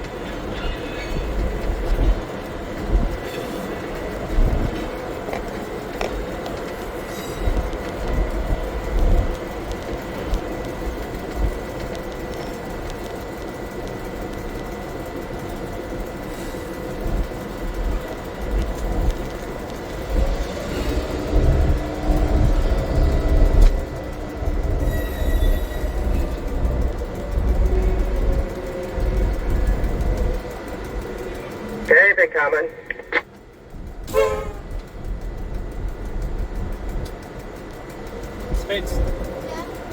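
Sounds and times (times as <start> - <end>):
wheels rolling over track: 0.0 - 31.9, 32.9 - 39.9
diesel locomotive engine rumbling: 0.0 - 39.9
high wheel squeal: 24.8 - 26.6.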